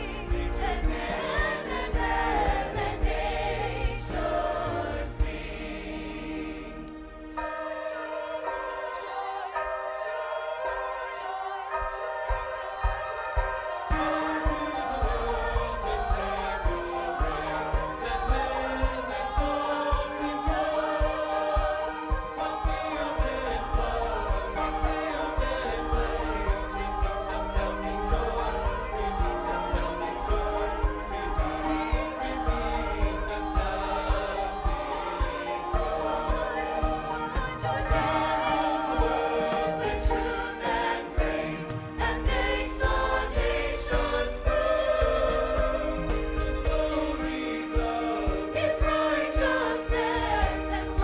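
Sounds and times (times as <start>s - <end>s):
church choir singing: 0.0s - 51.0s
instrumental ensemble with steady beat: 12.3s - 51.0s.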